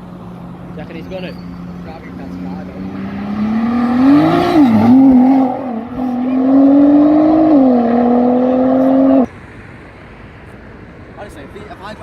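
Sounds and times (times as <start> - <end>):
car engine accelerating hard: 0.6 - 9.3.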